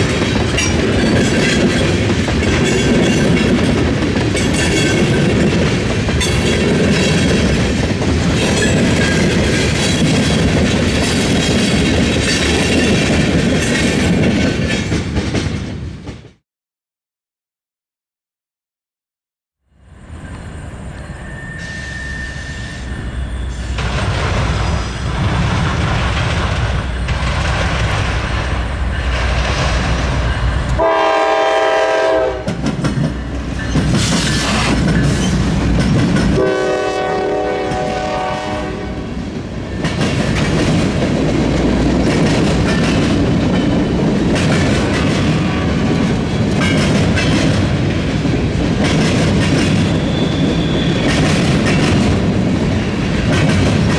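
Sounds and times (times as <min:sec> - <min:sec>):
freight train rumbling past: 0:00.0 - 0:16.4, 0:19.8 - 0:53.9
train horn blasts: 0:30.8 - 0:32.6, 0:36.4 - 0:39.2, 0:45.2 - 0:46.1.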